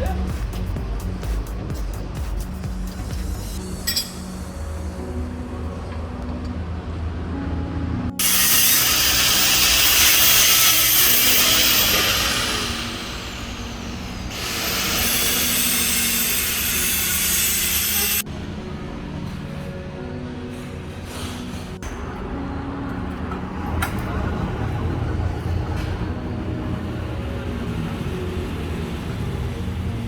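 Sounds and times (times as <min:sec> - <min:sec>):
power tool whining: 0:08.2 - 0:18.2.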